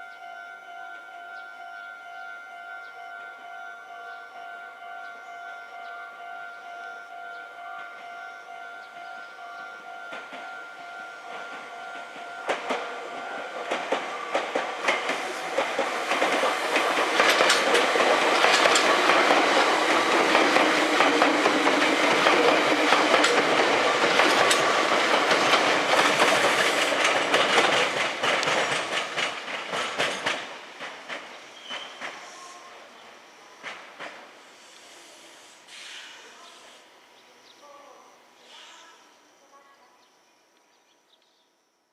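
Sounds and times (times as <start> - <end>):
electric train running on tracks: 0.0 - 35.5
wheels clacking over rail joints: 8.9 - 32.4.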